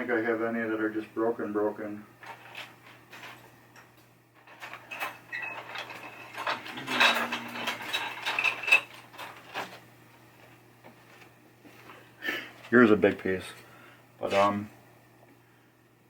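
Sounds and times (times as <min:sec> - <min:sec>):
plastic pieces clattering: 0:04.5 - 0:09.8.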